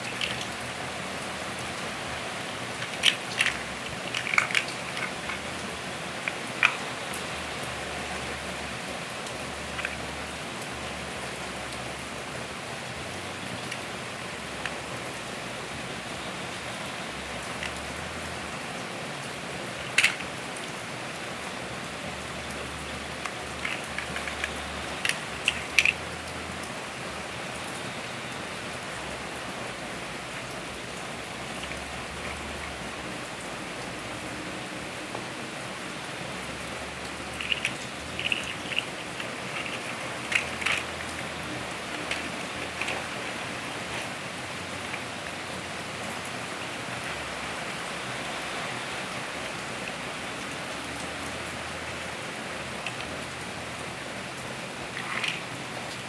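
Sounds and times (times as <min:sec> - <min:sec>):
plastic toy bricks clicking: 0:00.0 - 0:01.0, 0:01.7 - 0:08.2, 0:09.5 - 0:10.2, 0:17.3 - 0:18.0, 0:19.7 - 0:20.8, 0:22.3 - 0:26.6, 0:36.5 - 0:45.6, 0:52.6 - 0:53.3, 0:54.9 - 0:55.5
steady background hiss: 0:00.0 - 0:56.0.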